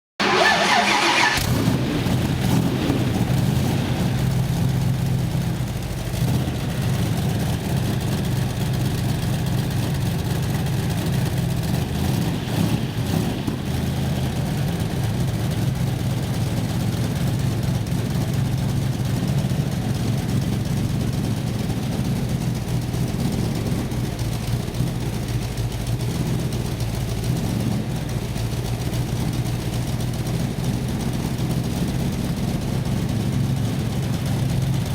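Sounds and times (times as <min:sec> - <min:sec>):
car engine starting and running: 0:00.2 - 0:34.9.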